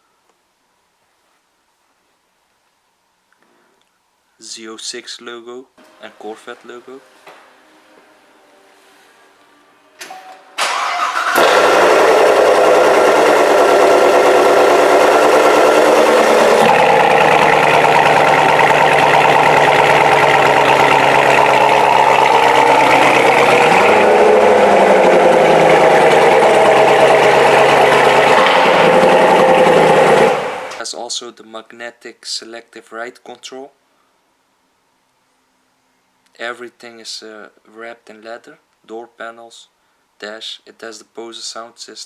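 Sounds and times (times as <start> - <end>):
car engine starting and idling: 10.0 - 30.8.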